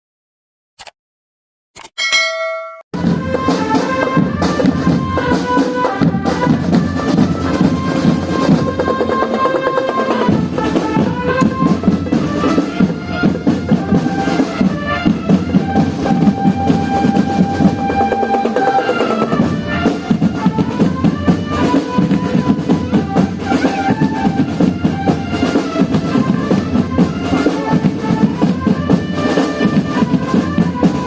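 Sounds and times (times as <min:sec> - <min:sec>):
bell-like ding: 0:01.9 - 0:02.9
brass melody: 0:03.0 - 0:31.0
marching drums: 0:03.0 - 0:31.0.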